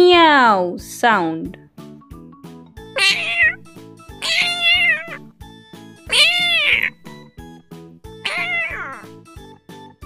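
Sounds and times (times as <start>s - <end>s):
background music with steady beat: 0.8s - 8.3s
cat meowing: 3.0s - 5.2s, 6.0s - 7.1s, 8.2s - 9.2s.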